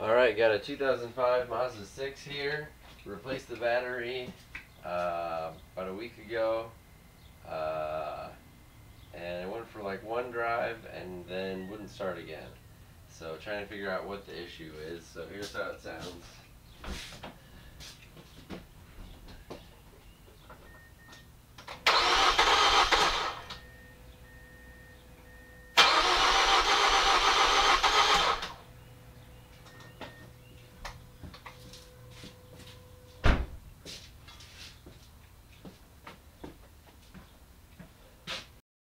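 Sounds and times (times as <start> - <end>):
starter motor cranking engine: 21.8 - 23.6, 25.8 - 28.6
thump: 33.2 - 33.6.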